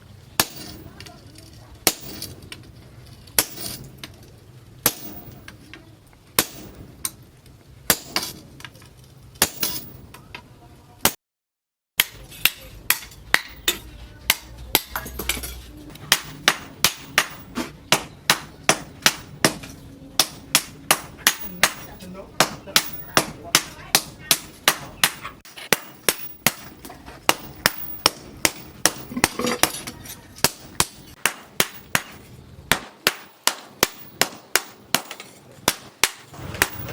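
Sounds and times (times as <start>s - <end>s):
hammer striking steel: 4.8s - 5.5s, 6.4s - 7.2s, 12.0s - 36.9s.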